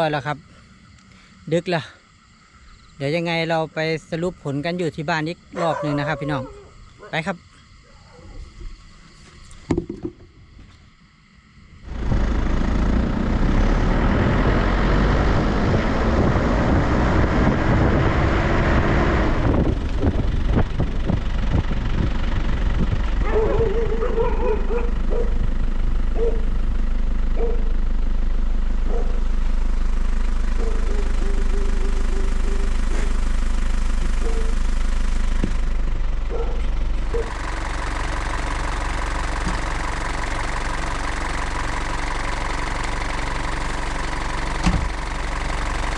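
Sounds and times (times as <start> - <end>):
vehicle engine driving: 11.6 - 45.9.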